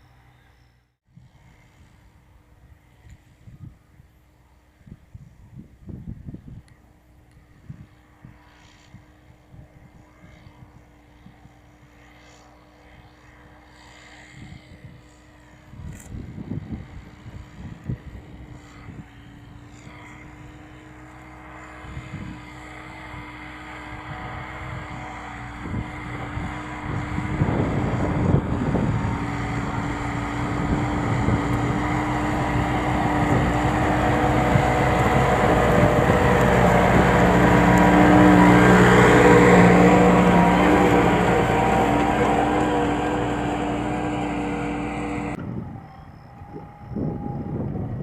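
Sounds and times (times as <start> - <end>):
tractor diesel engine under load: 15.4 - 45.9.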